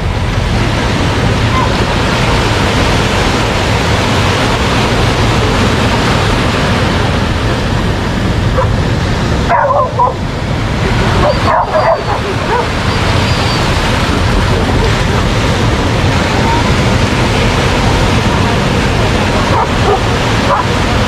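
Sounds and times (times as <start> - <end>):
surf: 0.0 - 21.0
wind on microphone: 0.0 - 21.0
dog yipping and barking: 9.5 - 10.2, 11.2 - 12.7.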